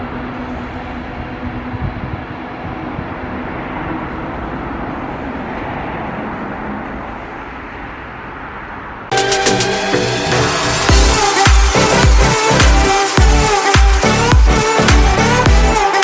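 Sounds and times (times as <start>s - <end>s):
train rumbling over a bridge: 0.0s - 9.1s
music: 9.1s - 16.0s.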